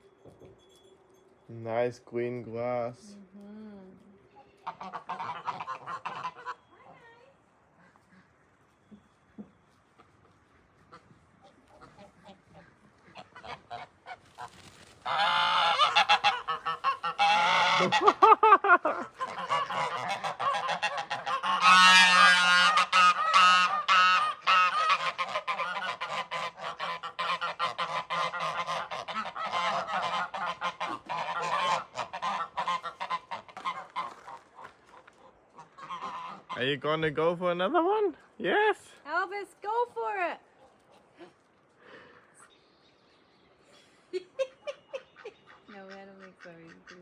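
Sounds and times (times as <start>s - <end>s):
geese honking: 4.1s - 37.1s.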